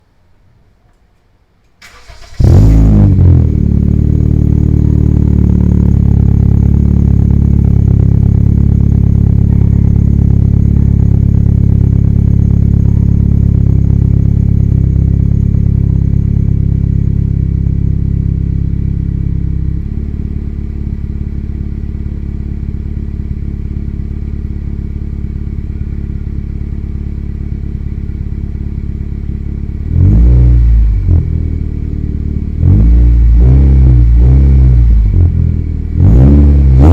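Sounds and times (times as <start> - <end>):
car engine idling: 1.8 - 33.4, 34.8 - 36.2
engine rev: 1.8 - 36.9.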